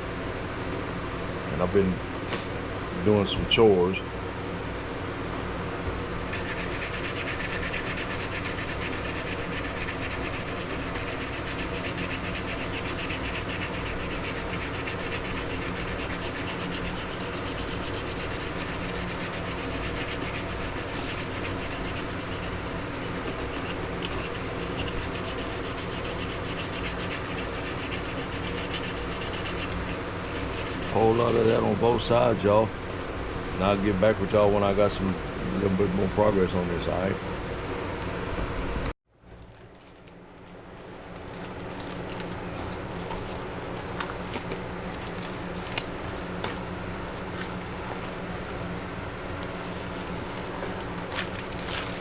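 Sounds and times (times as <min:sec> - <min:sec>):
knife handle being sanded: 0:06.3 - 0:31.8.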